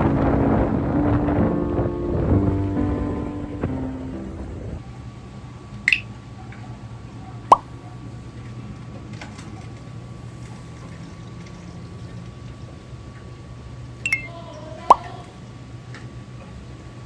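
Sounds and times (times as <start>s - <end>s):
steady low hum: 0.0s - 5.0s
water drops plopping: 14.1s - 14.3s.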